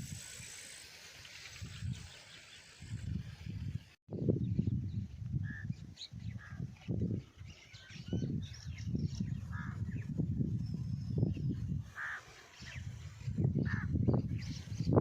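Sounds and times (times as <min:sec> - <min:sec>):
birds chirping: 0:04.3 - 0:15.0
crow cawing: 0:12.0 - 0:12.2.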